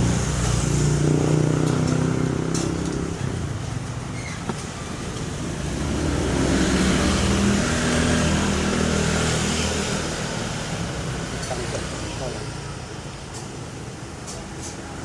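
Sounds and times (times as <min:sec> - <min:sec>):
vehicle driving past: 0:04.9 - 0:11.0.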